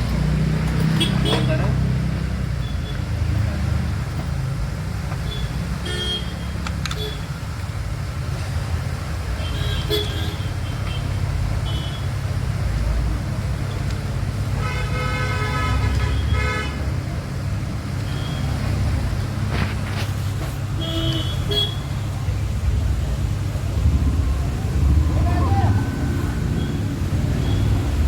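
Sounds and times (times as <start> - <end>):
low traffic rumble: 0.0 - 28.0
vehicle horn: 14.6 - 16.8.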